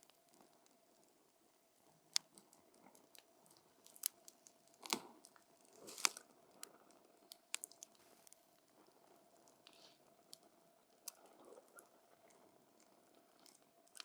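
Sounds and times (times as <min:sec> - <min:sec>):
campfire wood popping and snapping: 0:02.2 - 0:06.7, 0:07.4 - 0:08.0.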